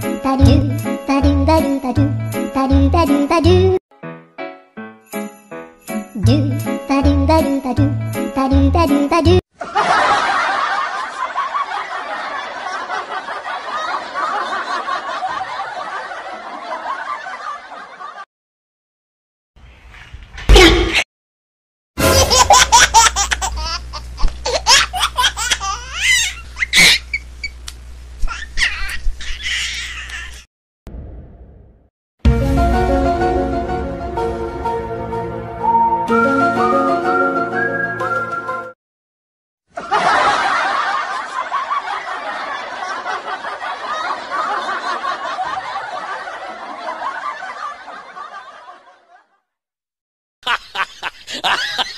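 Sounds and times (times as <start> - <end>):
many people laughing: 9.6 - 18.3, 39.7 - 49.4, 50.4 - 51.9
young child giggling: 22.1 - 27.2, 28.2 - 30.4, 50.4 - 51.9.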